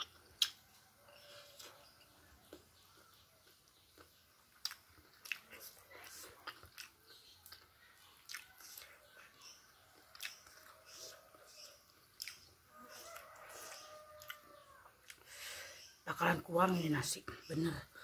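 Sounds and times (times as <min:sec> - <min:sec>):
wet mouth clicks and smacks: 0:00.0 - 0:00.6, 0:03.5 - 0:08.9, 0:10.0 - 0:10.7, 0:12.2 - 0:12.5
close-up chewing: 0:00.0 - 0:15.9.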